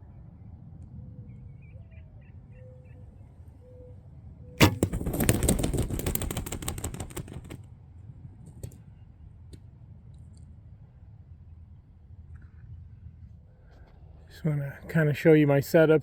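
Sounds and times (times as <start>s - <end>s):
sharp crack of bow shot: 4.6s - 5.8s
bird wings flapping and thrashing: 4.6s - 7.6s.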